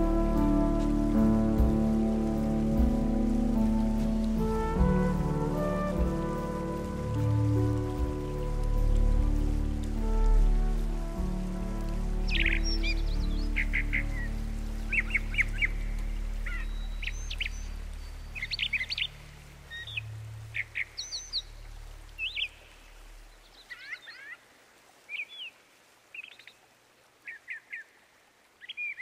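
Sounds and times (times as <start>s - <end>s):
low background music: 0.0s - 23.3s
birds chirping: 12.3s - 24.5s.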